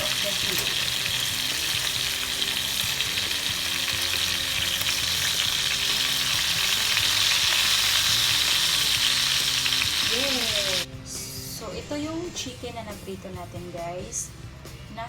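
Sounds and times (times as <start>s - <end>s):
chicken sizzling in a frying pan: 0.0s - 10.9s.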